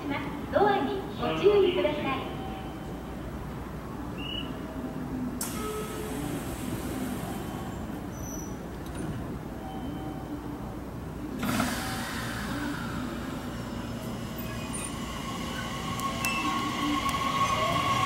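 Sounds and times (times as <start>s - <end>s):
train equipment hum: 0.0s - 18.0s
air brakes hissing: 11.4s - 18.0s.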